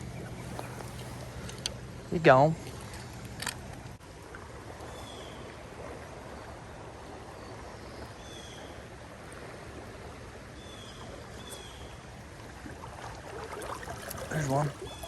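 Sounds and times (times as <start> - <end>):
creek water rushing: 4.0 - 15.0.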